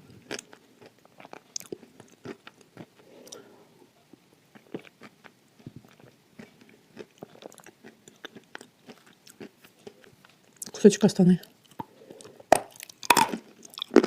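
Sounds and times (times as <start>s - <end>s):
clay being crunched and chewed: 11.5s - 14.0s.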